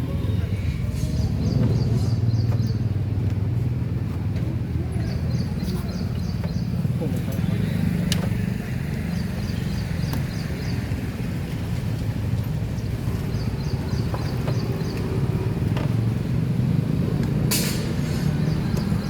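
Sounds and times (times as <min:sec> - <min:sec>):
low engine rumble: 0:00.0 - 0:19.0
short hiss: 0:17.5 - 0:18.3.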